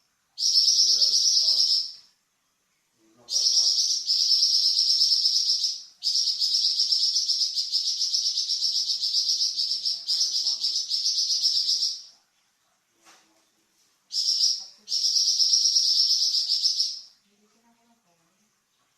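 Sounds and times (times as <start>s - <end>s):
songbird rattling trills: 0.4s - 2.0s, 3.3s - 12.1s, 14.1s - 17.1s.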